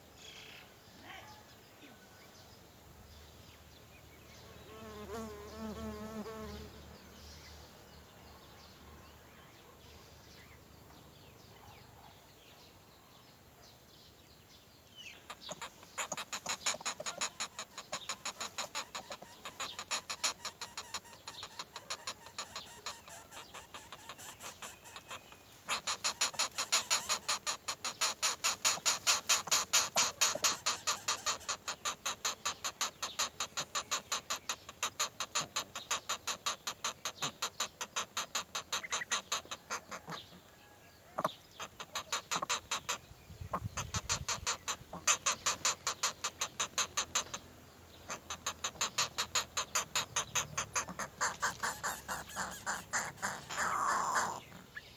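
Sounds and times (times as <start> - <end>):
bird chirping harshly: 15.0 - 40.3, 41.2 - 54.9.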